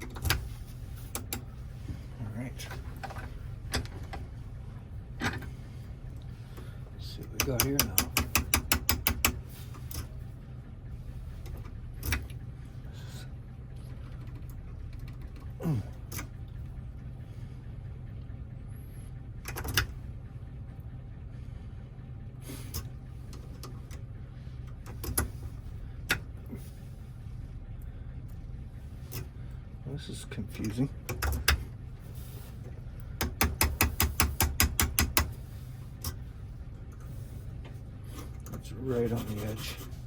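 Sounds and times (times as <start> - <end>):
steady low hum: 0.0 - 40.0
lock clicks and taps: 7.4 - 10.0, 31.1 - 31.6, 33.2 - 35.3.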